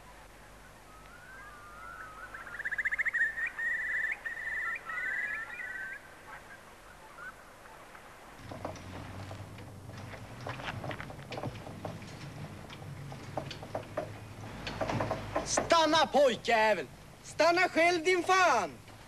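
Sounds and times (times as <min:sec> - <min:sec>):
bird whistling and trilling: 0:00.9 - 0:06.0
low hum: 0:08.4 - 0:15.7
sharp knocks and clatter: 0:08.4 - 0:16.3.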